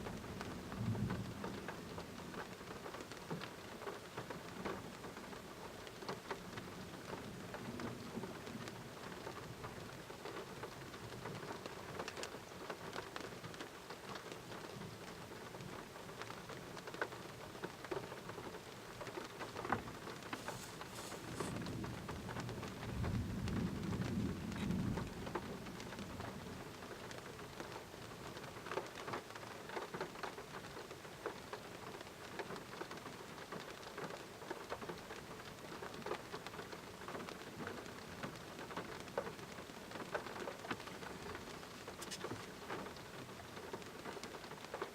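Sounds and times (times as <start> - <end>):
raindrops clicking on surfaces: 0.0 - 44.9
steady rain: 0.0 - 44.9
thunder rumble: 20.3 - 26.8.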